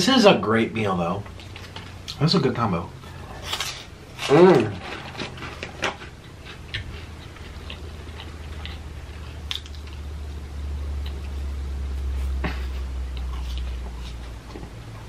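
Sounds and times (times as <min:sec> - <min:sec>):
low hum: 0:00.0 - 0:15.0
chewing and biting fries: 0:03.1 - 0:15.0.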